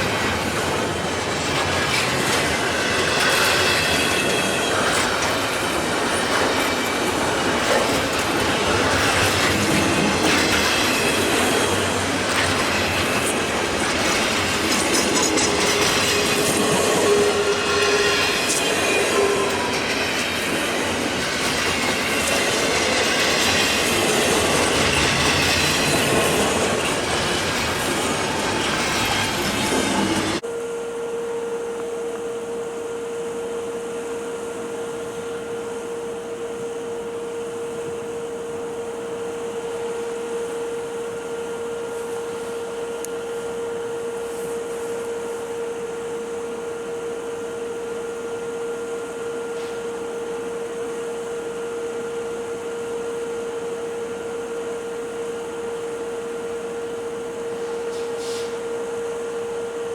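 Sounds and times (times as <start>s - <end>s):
freight train cars rolling: 0.0s - 30.4s
train wheel squeal: 0.0s - 30.4s, 57.5s - 58.8s
steady hum: 0.0s - 59.9s.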